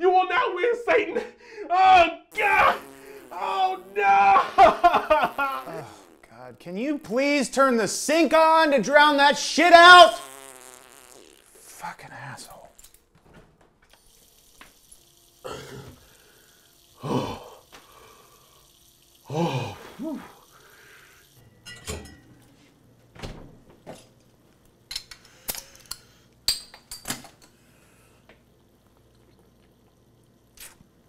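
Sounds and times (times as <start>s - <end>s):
man groaning: 1.7s - 6.0s, 15.5s - 16.0s, 17.0s - 17.6s, 19.3s - 20.4s.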